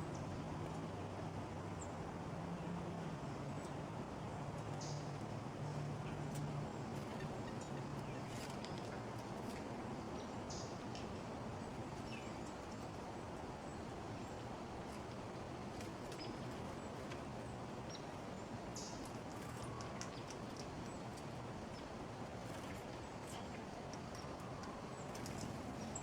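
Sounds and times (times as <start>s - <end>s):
low outdoor background hum: 0.0s - 26.0s
songbirds chirping: 0.0s - 26.0s.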